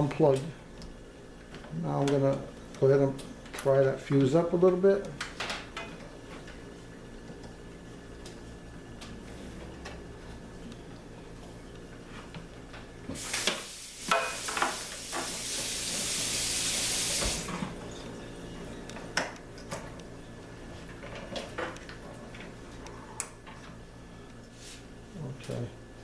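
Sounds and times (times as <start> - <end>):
steady hiss: 13.1 - 17.6.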